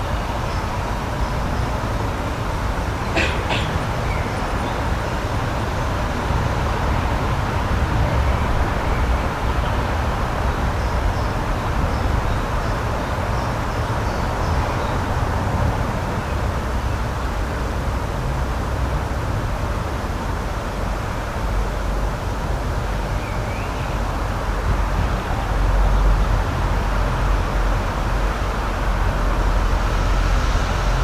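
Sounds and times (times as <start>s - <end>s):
rushing outdoor ambience: 0.0s - 31.0s
high bird call: 3.1s - 4.8s.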